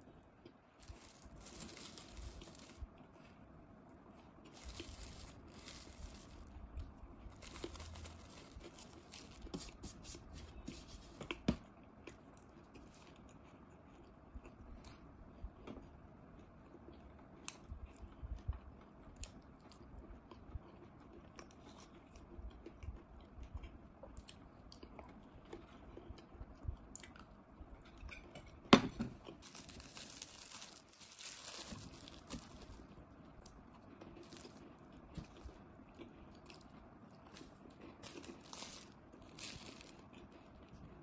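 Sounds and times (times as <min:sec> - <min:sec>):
rustling: 0:04.5 - 0:06.5, 0:29.4 - 0:33.0, 0:37.3 - 0:40.0.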